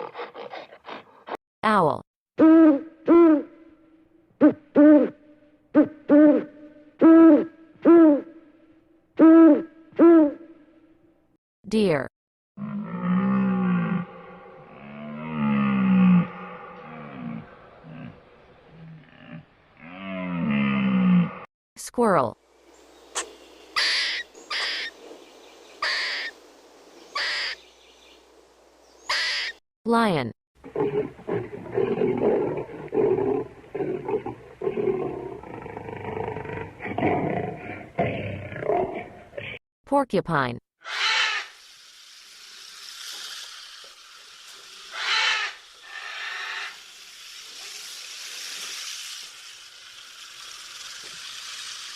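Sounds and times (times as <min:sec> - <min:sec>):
squirrel calling: 0:22.9 - 0:26.4, 0:27.0 - 0:28.2, 0:28.9 - 0:29.6, 0:40.8 - 0:41.6, 0:44.7 - 0:46.9
porcupine hissing: 0:40.8 - 0:51.9.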